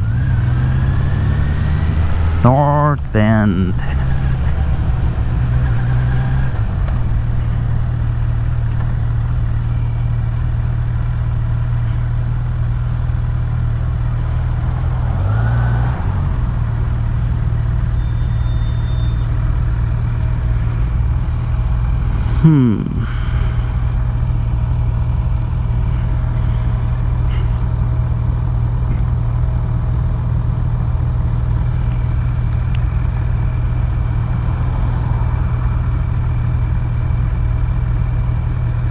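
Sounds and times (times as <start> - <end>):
motorcycle engine at low revs: 0.0 - 2.8, 3.7 - 15.1, 16.0 - 38.9.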